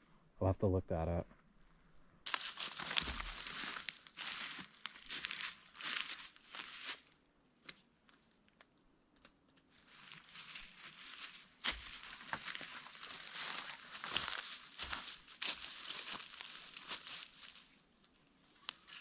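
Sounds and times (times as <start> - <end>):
synthetic material crinkling: 2.3 - 7.2, 9.8 - 17.8.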